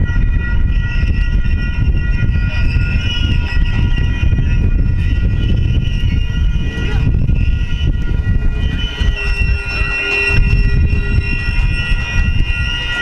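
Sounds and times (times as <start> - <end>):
high-pitched ringing tones: 0.0 - 13.0
steel wheels rumbling on rail: 0.0 - 13.0.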